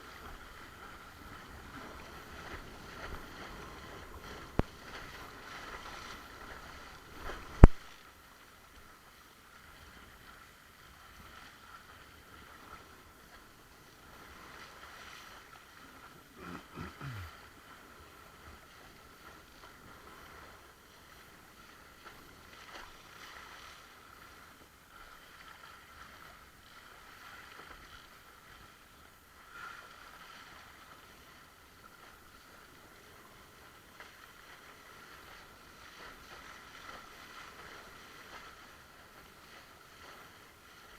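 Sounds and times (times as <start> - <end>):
water rushing and splashing: 0.0 - 31.9.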